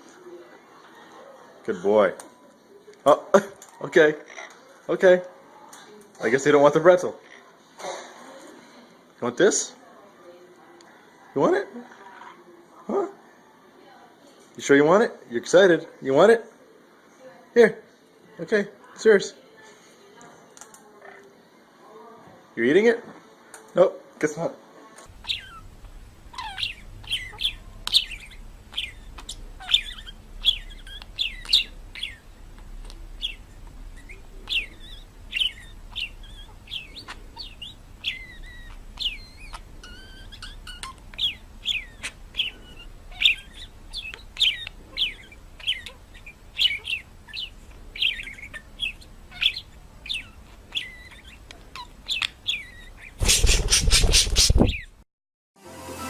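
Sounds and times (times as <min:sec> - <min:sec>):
faint clicks: 0:20.2 - 0:20.8
birds chirping: 0:25.1 - 0:55.0.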